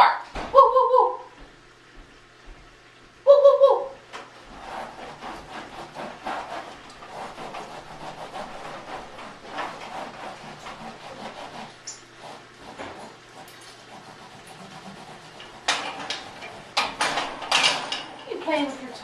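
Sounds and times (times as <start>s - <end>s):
scratchy rubbing and scraping: 4.4s - 19.0s.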